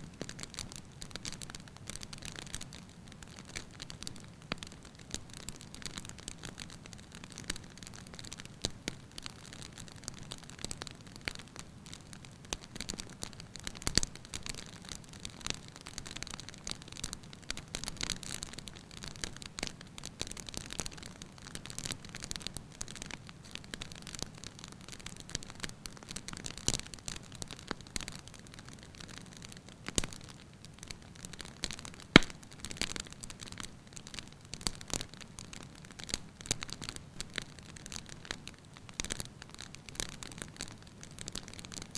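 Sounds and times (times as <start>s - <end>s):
wood fire crackling: 0.0s - 41.9s.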